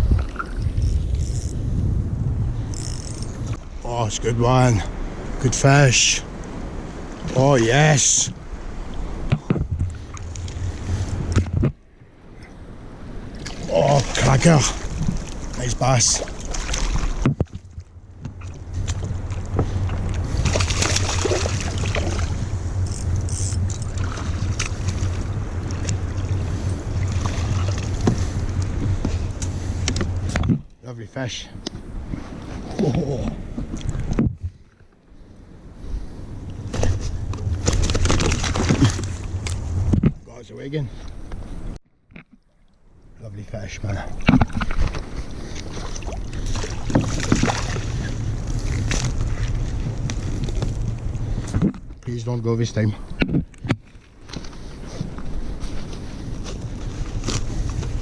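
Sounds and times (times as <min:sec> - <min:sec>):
wind rumble on microphone: 0:00.0 - 0:30.8, 0:31.5 - 0:41.8, 0:43.0 - 0:58.0
water splashes: 0:13.2 - 0:30.4, 0:37.6 - 0:39.5, 0:43.8 - 0:51.8.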